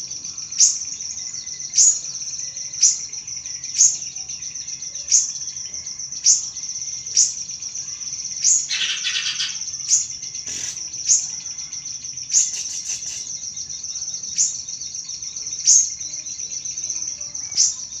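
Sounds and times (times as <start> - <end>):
bird harsh chattering: 7.8 - 11.6, 12.4 - 13.6
bird high thin trill: 8.7 - 11.5, 12.4 - 13.4.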